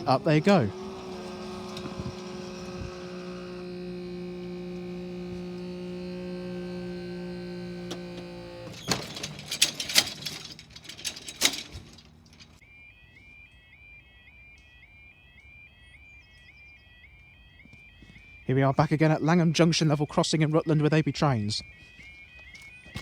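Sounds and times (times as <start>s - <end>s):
hydraulic pump motor humming: 0.0s - 12.6s.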